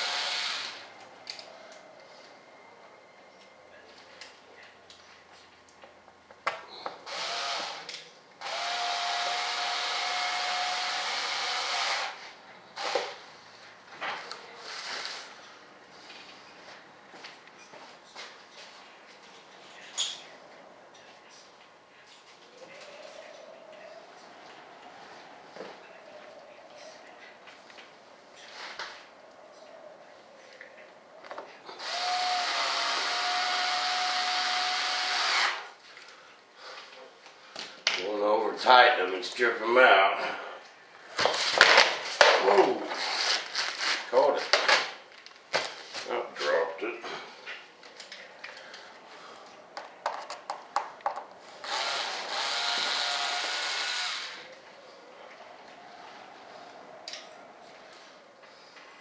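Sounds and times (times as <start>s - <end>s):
power tool motor whirring: 7.1s - 12.2s, 31.8s - 35.7s, 51.6s - 54.5s.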